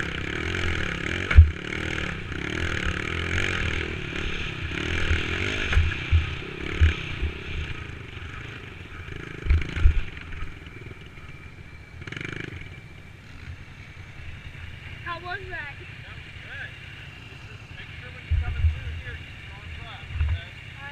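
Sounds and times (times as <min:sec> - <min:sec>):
dirt bike engine running: 0:00.0 - 0:20.9
low thumps: 0:18.2 - 0:19.2.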